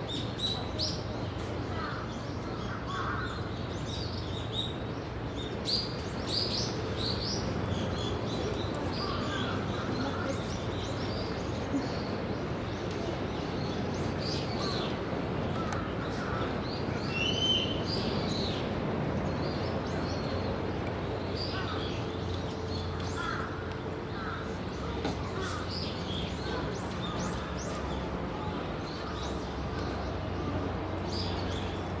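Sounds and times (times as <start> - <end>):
birds calling: 0.1 - 32.0.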